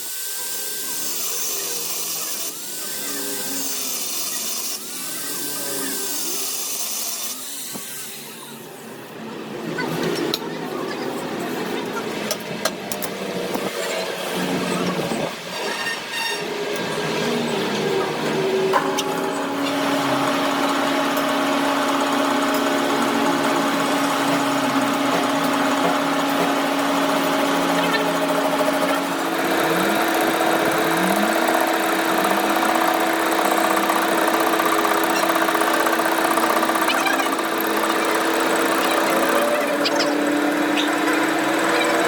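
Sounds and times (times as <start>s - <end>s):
machine motor hum: 16.8s - 42.0s.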